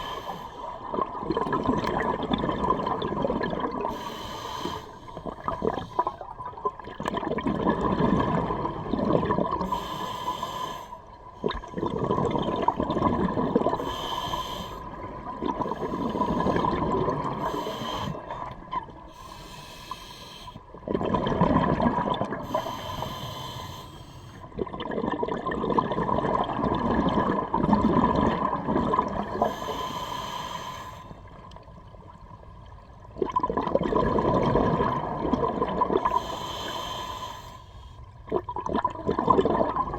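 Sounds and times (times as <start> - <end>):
exhaled bubbles rushing: 0.6 - 4.0, 5.2 - 9.7, 11.3 - 13.9, 14.8 - 17.6, 20.7 - 22.6, 24.4 - 29.5, 33.0 - 36.2, 38.2 - 39.9.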